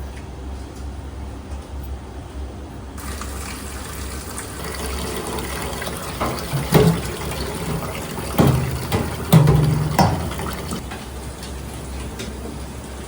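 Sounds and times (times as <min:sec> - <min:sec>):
water running from a tap: 0:03.0 - 0:10.8
knocks: 0:06.2 - 0:10.8.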